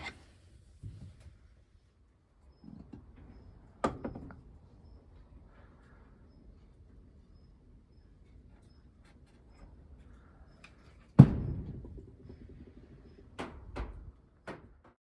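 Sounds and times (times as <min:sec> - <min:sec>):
wooden door banging shut: 0:11.2 - 0:12.0.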